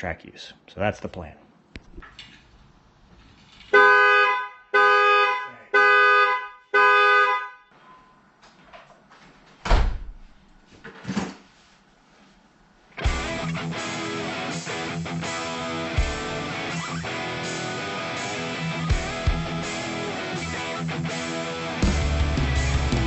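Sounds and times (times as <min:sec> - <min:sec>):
two-tone car horn honking: 0:03.7 - 0:08.0.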